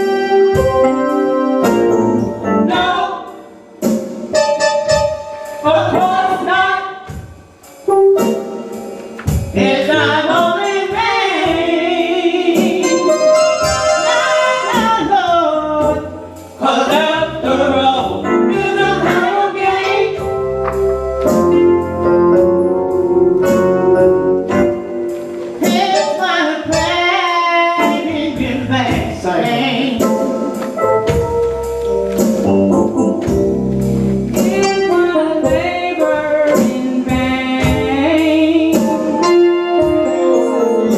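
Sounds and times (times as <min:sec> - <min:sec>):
instrumental accompaniment: 0:00.0 - 0:40.9
gospel singing: 0:08.8 - 0:21.7, 0:25.6 - 0:31.0, 0:34.4 - 0:40.9.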